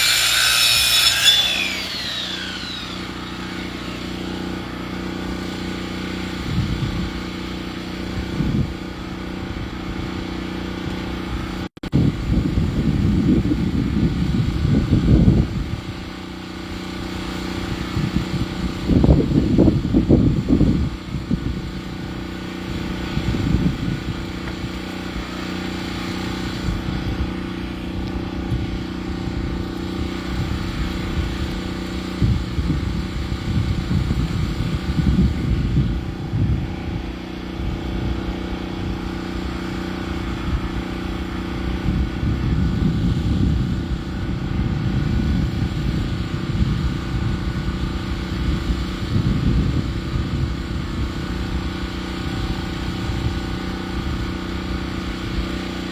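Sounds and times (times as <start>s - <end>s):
engine rumbling: 0.0s - 10.2s.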